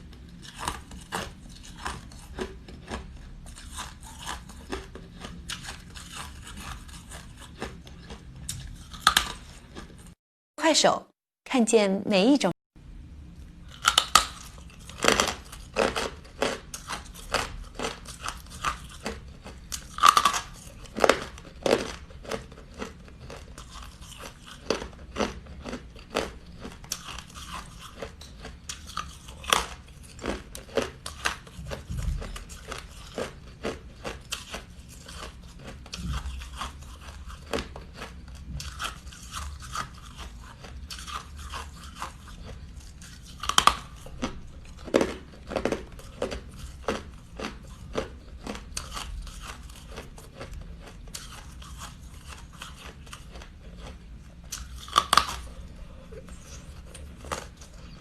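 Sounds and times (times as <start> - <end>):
chewing crunchy ice: 0.0 - 10.2, 13.4 - 58.0.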